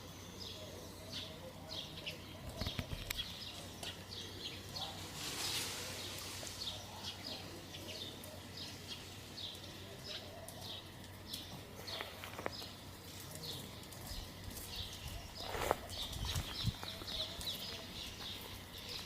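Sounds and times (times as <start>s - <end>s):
bird chirping: 0.0s - 19.0s
outdoor background hiss: 0.0s - 19.0s.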